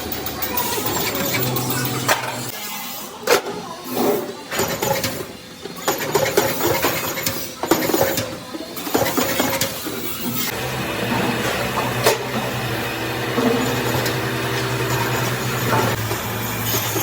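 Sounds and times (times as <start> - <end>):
machine hum: 10.5 - 17.0.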